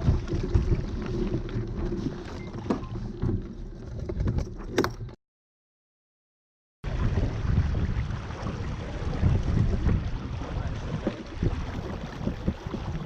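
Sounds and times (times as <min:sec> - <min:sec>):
water sounds: 0:00.0 - 0:05.2, 0:06.8 - 0:13.0
wind buffeting microphone: 0:06.9 - 0:13.0.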